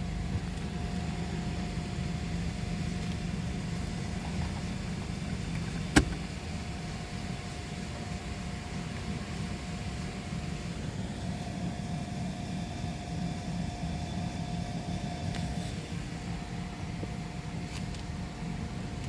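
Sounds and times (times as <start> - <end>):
car wash machinery rumbling: 0.0 - 19.0
faint constant hum: 0.0 - 19.0.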